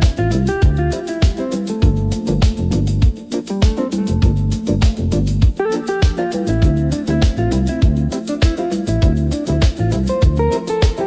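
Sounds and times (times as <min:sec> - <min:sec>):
deep kick drum: 0:00.0 - 0:11.0
electronic music: 0:00.0 - 0:11.0
light high percussion ticking: 0:00.0 - 0:11.0
plucked-string melody: 0:00.0 - 0:11.0.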